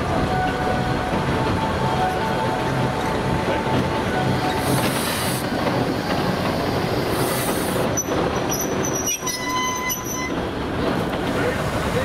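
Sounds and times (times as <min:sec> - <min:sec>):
train wheels rumbling on rails: 0:00.0 - 0:12.0
high wheel squeal: 0:07.9 - 0:10.4.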